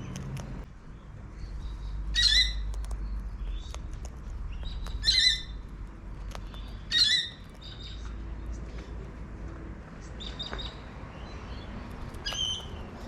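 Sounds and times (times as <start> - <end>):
cockatoo calling: 6.8 - 7.8.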